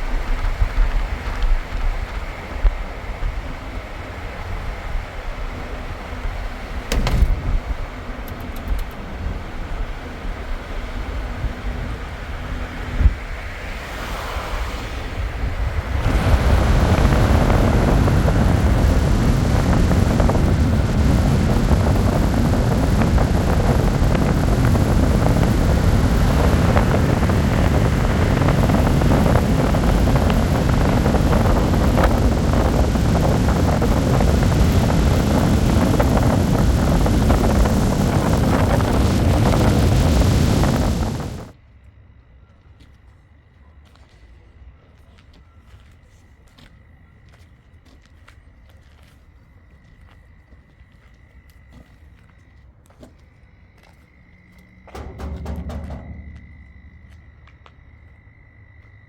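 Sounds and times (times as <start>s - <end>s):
vehicle road rumble: 0.0s - 41.6s, 51.7s - 59.0s
wind noise on microphone: 0.0s - 41.6s, 54.7s - 58.8s.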